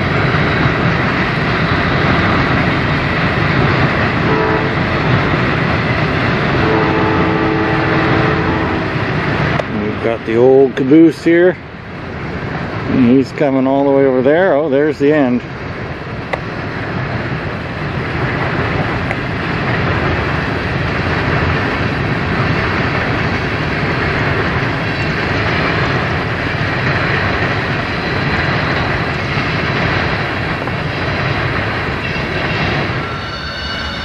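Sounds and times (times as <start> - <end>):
freight train wheels rumbling: 0.0 - 34.0
high steady tones: 31.9 - 34.0.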